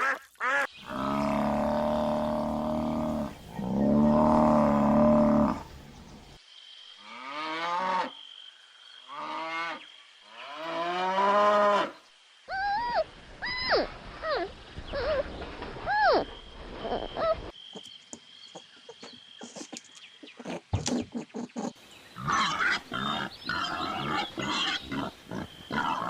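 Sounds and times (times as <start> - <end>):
animal calls: 0.0 - 6.4, 18.5 - 26.0.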